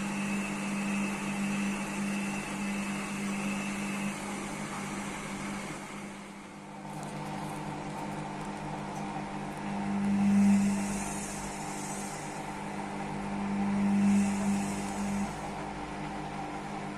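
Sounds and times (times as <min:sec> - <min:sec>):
washing machine motor hum: 0:00.0 - 0:16.9.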